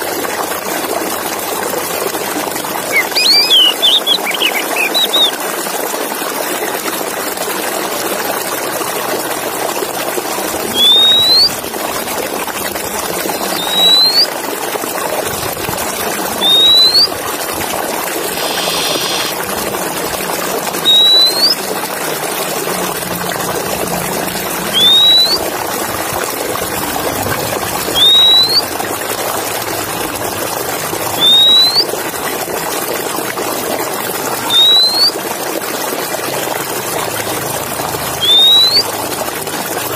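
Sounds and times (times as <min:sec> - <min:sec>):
rushing water noise: 0:00.0 - 0:39.9
bird rising whistle: 0:02.9 - 0:05.4, 0:10.7 - 0:11.6, 0:13.4 - 0:14.3, 0:16.4 - 0:17.1, 0:18.2 - 0:19.4, 0:20.8 - 0:21.6, 0:24.7 - 0:25.5, 0:28.0 - 0:28.6, 0:31.2 - 0:31.9, 0:34.5 - 0:35.1, 0:38.2 - 0:38.9.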